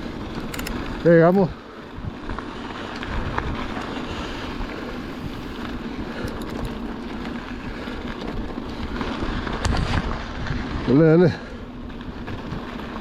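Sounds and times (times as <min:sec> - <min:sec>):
bike tyres on dirt trail: 0:00.0 - 0:13.0
wind buffeting microphone: 0:00.0 - 0:13.0
light clicks and rattles: 0:00.4 - 0:01.5, 0:06.1 - 0:07.4.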